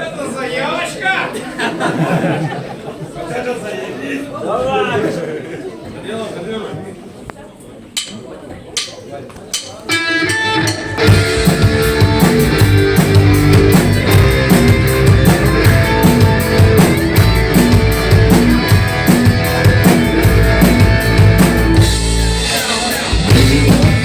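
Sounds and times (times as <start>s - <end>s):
steady drum beat: 8.0s - 24.0s
rock band playing: 9.9s - 24.0s.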